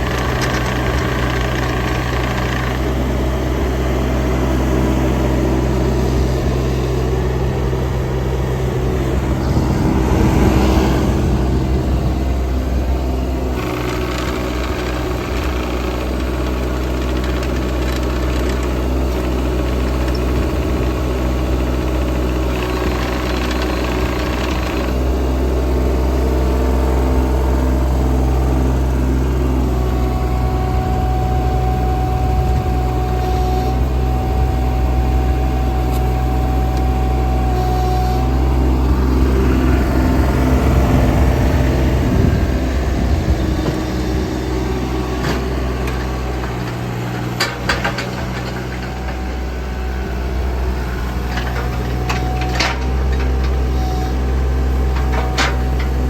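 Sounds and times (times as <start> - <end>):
sharp clicks and clanks: 0.0 - 2.9, 13.6 - 20.6
excavator diesel engine running: 0.0 - 56.0.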